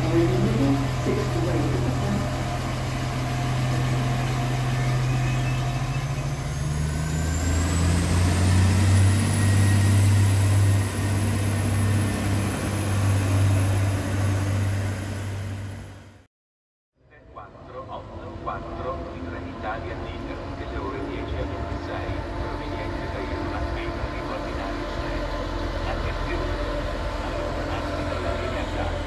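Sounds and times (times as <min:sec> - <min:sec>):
high whine rising in pitch: 0:00.0 - 0:16.1
train traction hum: 0:00.0 - 0:16.2, 0:17.2 - 0:29.0.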